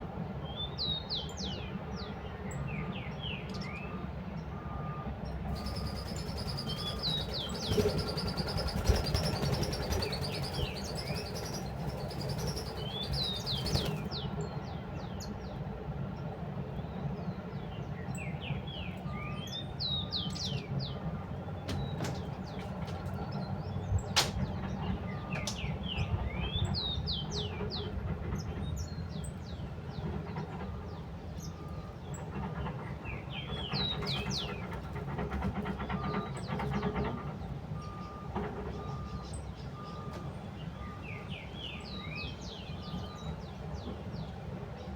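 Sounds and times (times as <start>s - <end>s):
small birds chirping: 5.5s - 15.4s, 32.9s - 35.0s.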